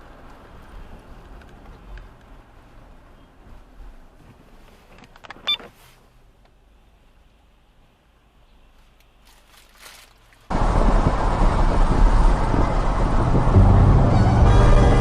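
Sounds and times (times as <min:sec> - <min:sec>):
car driving noise: 0:10.5 - 0:15.0.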